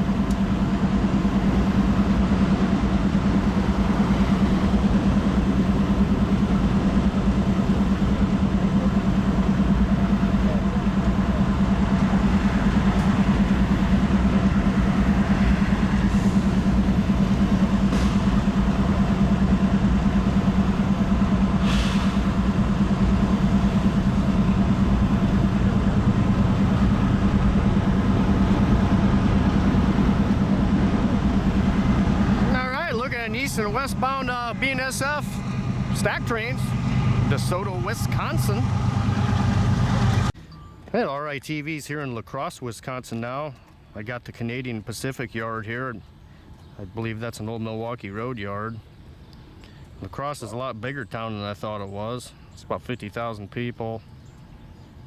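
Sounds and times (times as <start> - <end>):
engine hum: 0.0 - 41.1.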